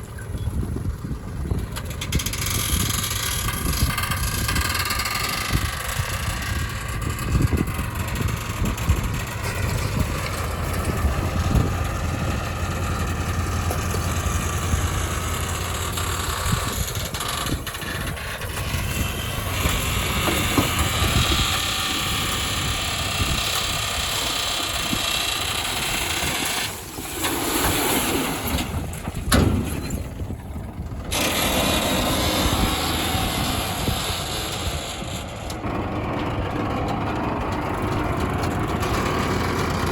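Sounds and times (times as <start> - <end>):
heavy diesel engines under load: 0.0 - 39.9.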